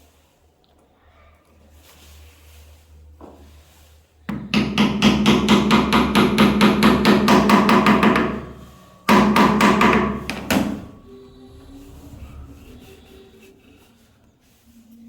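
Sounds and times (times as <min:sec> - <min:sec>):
hammer blows: 0:04.3 - 0:13.7.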